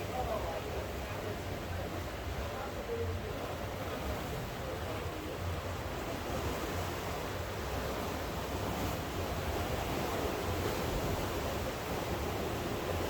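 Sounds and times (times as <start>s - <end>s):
sea surf: 0.0s - 13.0s.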